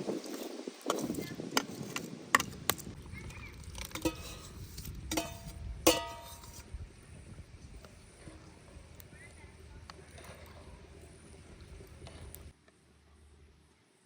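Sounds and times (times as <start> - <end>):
metal utensil clinking on pot: 3.8 - 6.6.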